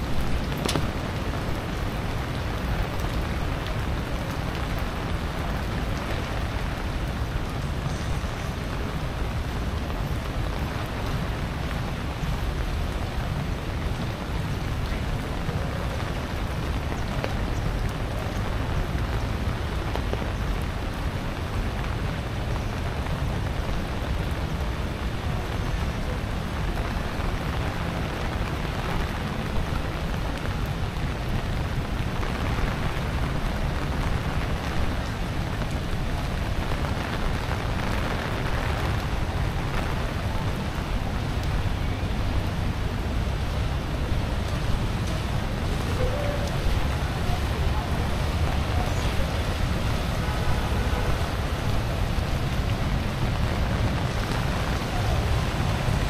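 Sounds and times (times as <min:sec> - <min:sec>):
rain on stone paving: 0:00.0 - 0:56.0.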